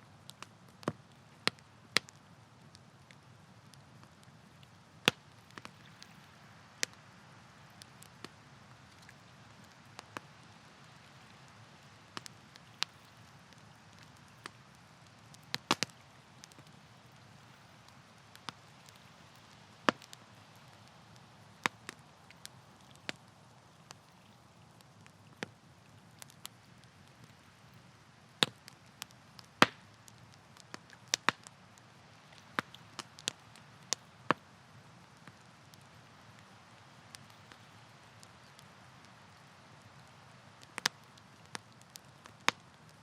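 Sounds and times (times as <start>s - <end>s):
campfire crackling and popping: 0.0s - 43.0s.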